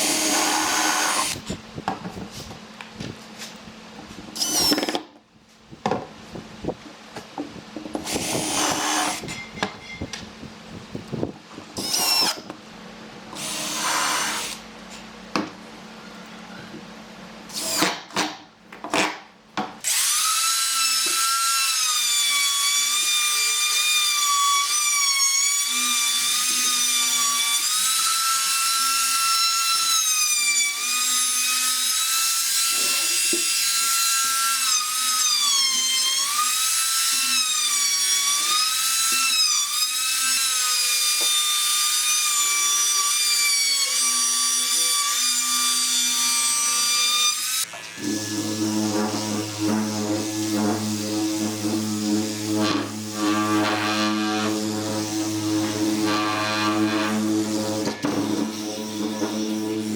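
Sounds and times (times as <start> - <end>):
power drill whining in wood: 0.0 - 1.6, 4.4 - 5.1, 8.0 - 10.2, 11.8 - 12.5, 13.4 - 14.6, 19.8 - 59.9.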